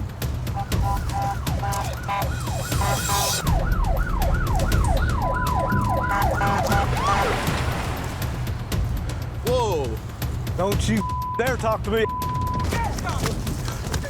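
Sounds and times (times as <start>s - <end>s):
police siren: 0.6s - 7.8s.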